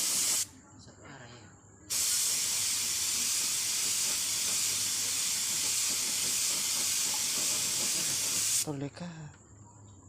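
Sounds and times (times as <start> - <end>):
paint spray gun hissing: 0.0 - 0.5, 1.9 - 8.7.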